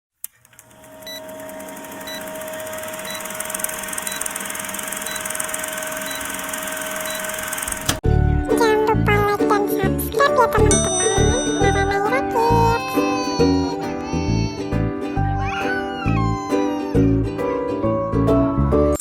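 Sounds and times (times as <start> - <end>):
short high beeps: 2.0 - 7.6
cheerful children's music: 8.1 - 19.0.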